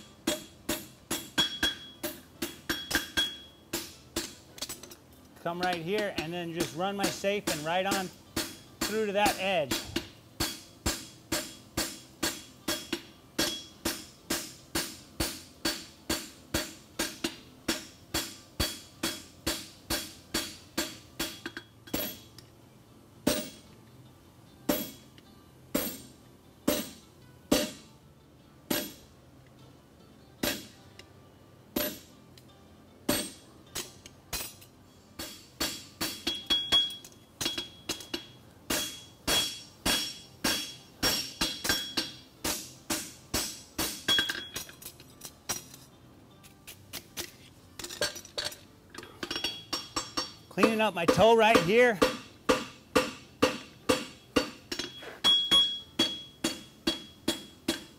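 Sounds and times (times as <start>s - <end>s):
hammer striking steel on anvil: 0.0s - 22.4s, 24.7s - 25.0s, 25.7s - 26.1s, 26.7s - 27.9s, 28.7s - 29.1s, 30.4s - 30.8s, 31.8s - 32.1s, 33.1s - 44.7s, 49.1s - 57.9s.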